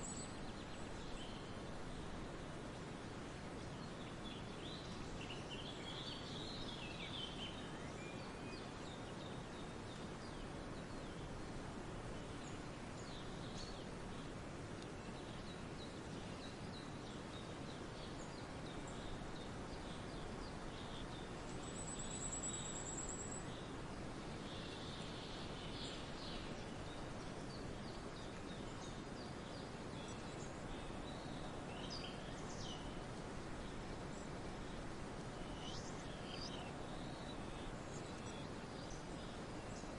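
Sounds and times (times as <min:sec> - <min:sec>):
steady background hiss: 0:00.0 - 0:39.9
birds chirping: 0:24.4 - 0:39.9.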